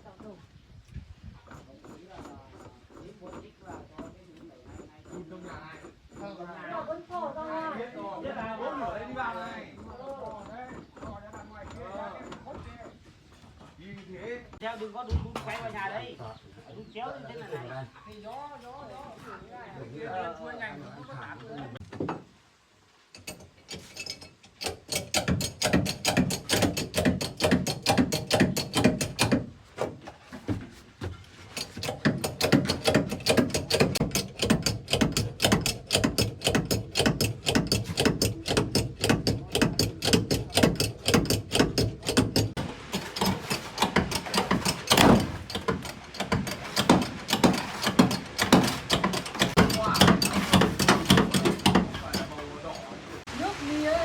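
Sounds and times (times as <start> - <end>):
ratchet wrench clicking: 23.2 - 29.3, 31.6 - 42.5.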